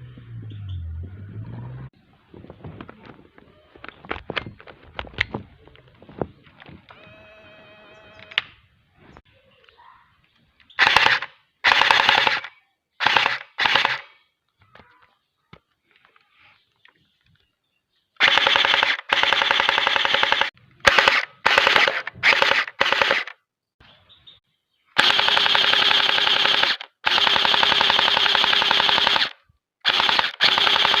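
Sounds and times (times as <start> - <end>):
gel blaster firing bursts: 10.8 - 14.1, 18.2 - 23.4, 25.0 - 31.0.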